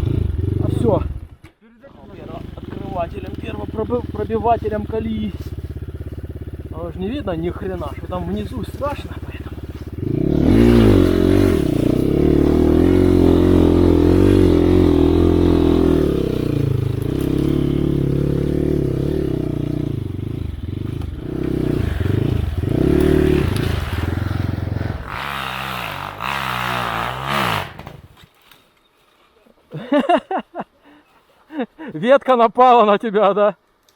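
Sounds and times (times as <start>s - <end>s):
dirt bike engine revving: 0.0s - 28.2s.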